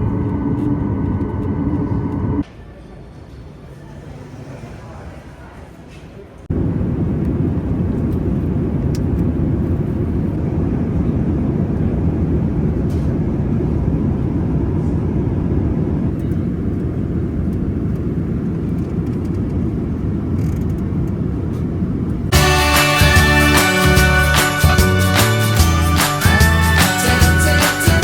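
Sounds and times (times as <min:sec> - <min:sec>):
jet engines rumbling: 0:00.0 - 0:02.4, 0:06.4 - 0:26.8.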